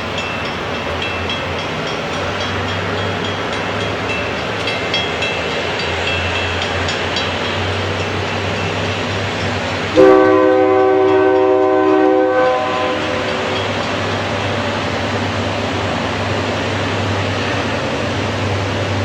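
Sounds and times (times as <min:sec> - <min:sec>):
rumble of moving train: 0:00.0 - 0:19.0
locomotive air horn blast: 0:09.9 - 0:13.1.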